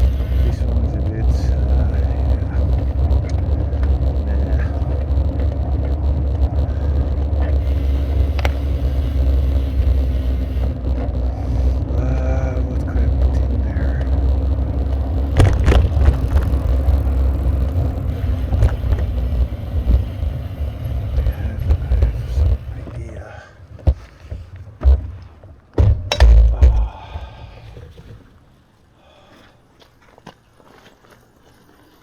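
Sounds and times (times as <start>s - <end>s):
wavering tone: 0.0s - 23.0s
vibration noise: 0.0s - 28.4s
bicycle rumbling over rough road: 0.0s - 28.6s
sharp knocks: 23.8s - 27.0s.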